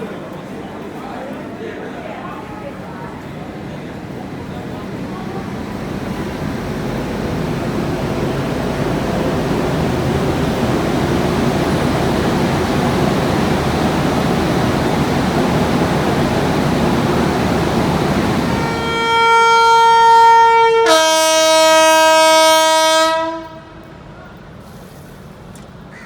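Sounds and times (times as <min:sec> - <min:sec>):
loud steady rushing noise: 0:04.0 - 0:18.9
locomotive air horn: 0:18.3 - 0:23.9.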